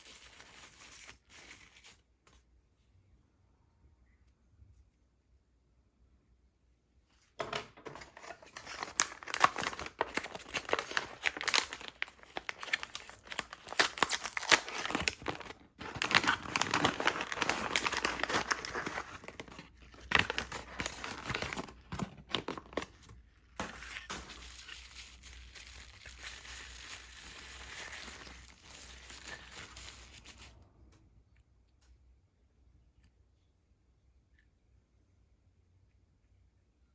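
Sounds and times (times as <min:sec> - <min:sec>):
packaging crinkling and tearing: 0:00.0 - 0:02.0, 0:07.9 - 0:30.5.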